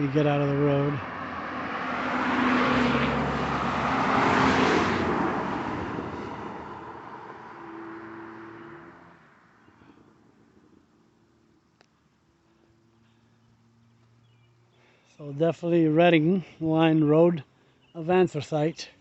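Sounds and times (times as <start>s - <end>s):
car passing by: 0.9s - 10.1s.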